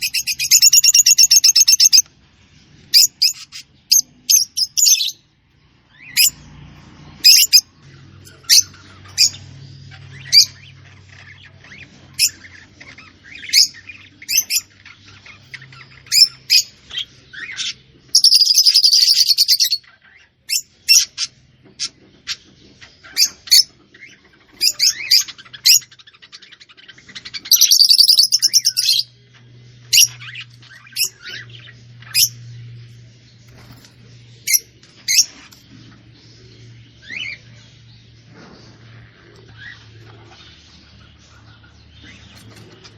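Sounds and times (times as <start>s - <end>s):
loud fast bird trills: 0.0s - 2.0s, 27.4s - 29.1s
songbird chirping: 0.0s - 42.9s
faint low hum: 23.8s - 42.9s.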